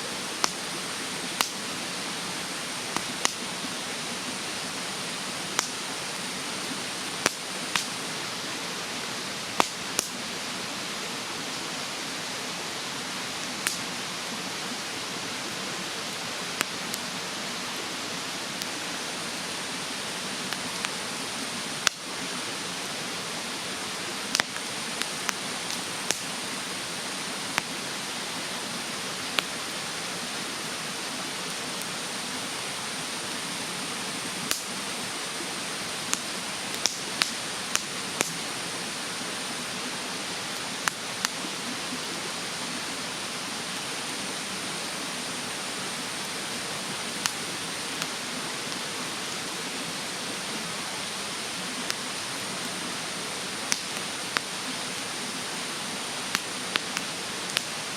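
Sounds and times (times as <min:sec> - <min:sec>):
mountain stream rushing: 0:00.0 - 0:57.9
wood fire crackling and popping: 0:00.2 - 0:03.8, 0:04.6 - 0:06.0, 0:07.0 - 0:08.0, 0:09.5 - 0:10.2, 0:13.4 - 0:13.9, 0:21.7 - 0:22.2, 0:24.2 - 0:26.8, 0:29.3 - 0:29.7, 0:34.3 - 0:34.8, 0:35.8 - 0:38.4, 0:47.1 - 0:48.8, 0:53.6 - 0:55.2, 0:56.2 - 0:57.9.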